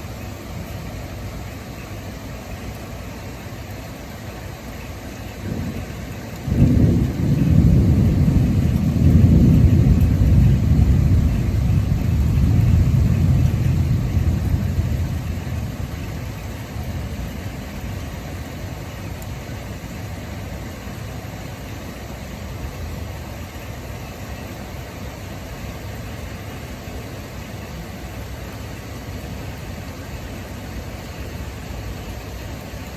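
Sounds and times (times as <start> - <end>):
heavy rain hiss: 0.0 - 32.9
thunder crack and rumble: 5.4 - 19.3.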